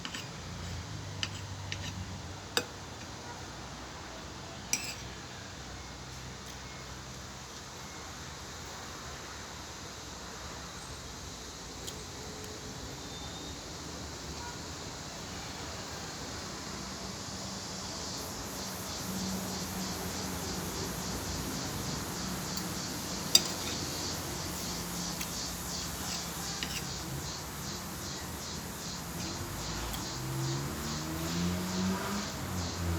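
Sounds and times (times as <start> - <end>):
steady background hiss: 0.0 - 32.9
cutlery clinking: 1.2 - 2.0, 4.7 - 5.1, 22.4 - 27.0.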